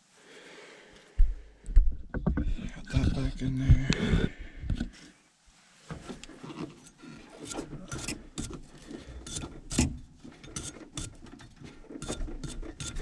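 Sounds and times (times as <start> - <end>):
hand tools scraping metal: 6.1 - 13.0.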